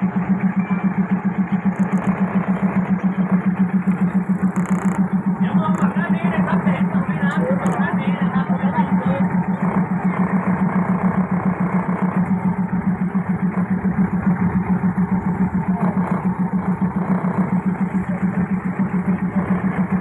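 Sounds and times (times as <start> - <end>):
diesel railcar engine throbbing: 0.0 - 20.0.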